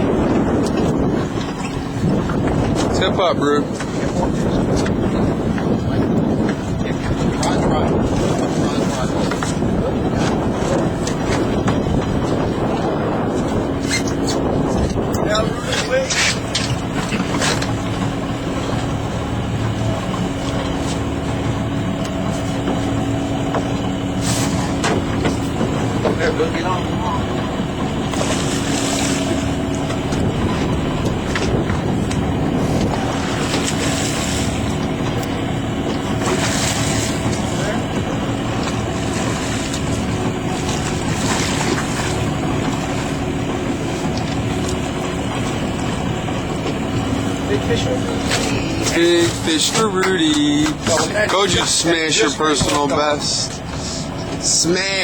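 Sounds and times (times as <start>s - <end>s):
boat engine running: 0.0s - 55.0s
water noise: 0.0s - 55.0s
wind: 0.0s - 55.0s.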